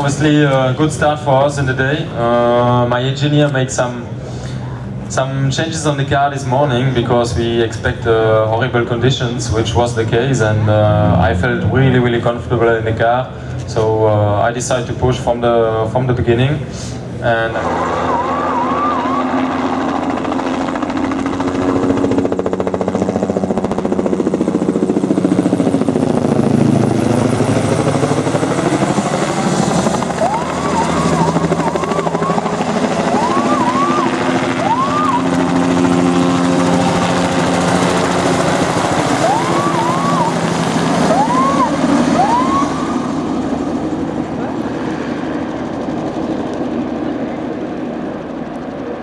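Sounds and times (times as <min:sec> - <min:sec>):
steady low drone: 0:09.5 - 0:12.6
rally car engine revving: 0:09.6 - 0:13.0, 0:17.4 - 0:22.2, 0:27.1 - 0:44.6.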